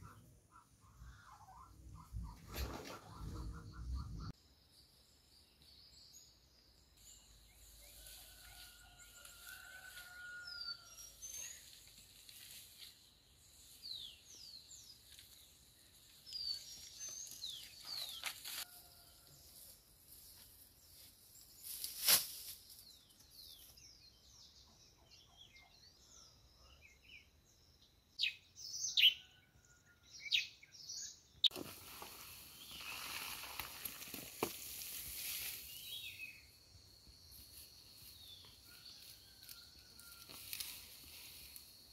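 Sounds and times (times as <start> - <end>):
small birds chirping: 10.5 - 18.4, 30.2 - 41.9.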